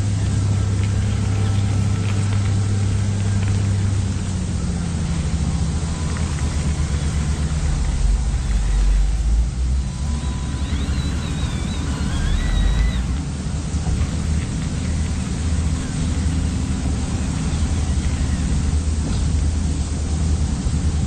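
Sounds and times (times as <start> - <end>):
model engines rumbling: 0.0 - 21.0
high chirps: 5.2 - 13.2.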